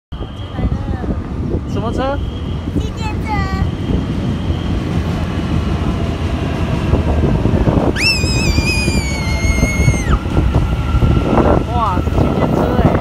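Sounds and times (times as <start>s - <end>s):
passenger train rumbling past: 0.1s - 13.0s
child squealing: 8.0s - 10.2s.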